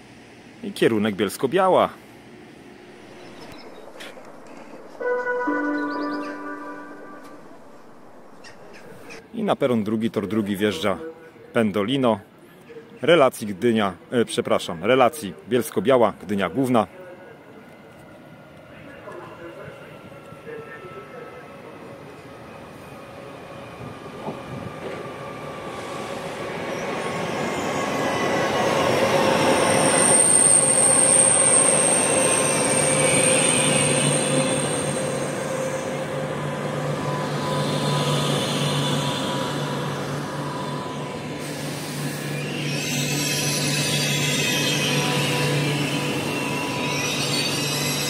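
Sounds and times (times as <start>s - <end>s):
train rumble: 2.3s - 9.3s
high-pitched train squeal: 3.0s - 9.2s, 19.5s - 48.0s.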